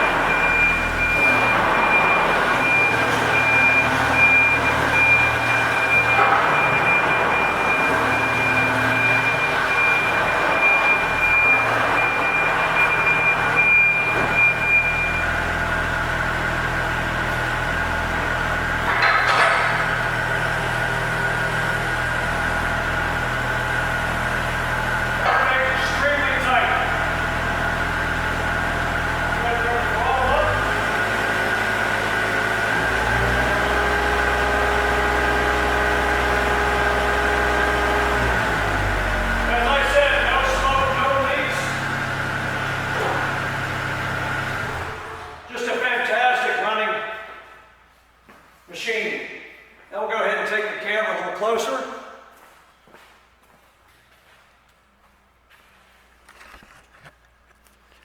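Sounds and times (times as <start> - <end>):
excavator diesel engine running: 0.0 - 45.6.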